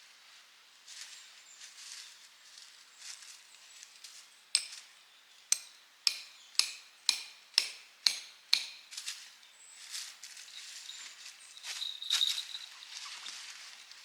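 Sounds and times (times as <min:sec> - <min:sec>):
hammer striking metal tent peg: 0:04.6 - 0:04.8, 0:05.5 - 0:08.9.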